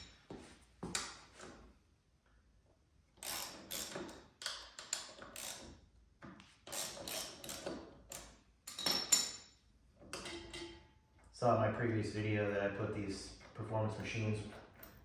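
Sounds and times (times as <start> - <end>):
ratchet wrench clicking: 3.2 - 5.8, 6.7 - 8.9.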